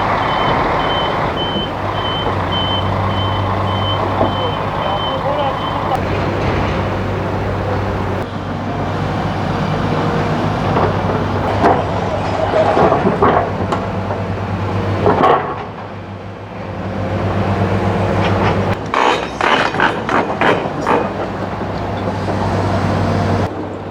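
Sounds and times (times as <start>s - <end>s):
diesel engine running: 0.0s - 23.9s
metallic clanks and scrapes: 18.2s - 22.4s.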